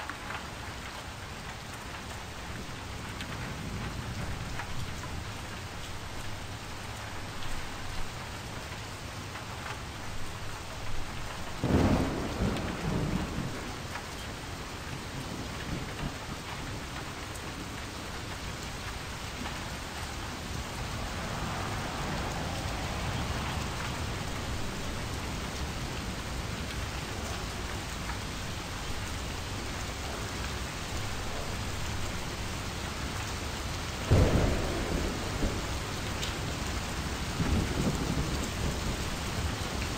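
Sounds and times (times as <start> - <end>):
steady rain falling: 0.0 - 39.9
thunder rumbling: 10.8 - 14.0, 18.8 - 27.4, 33.6 - 39.9.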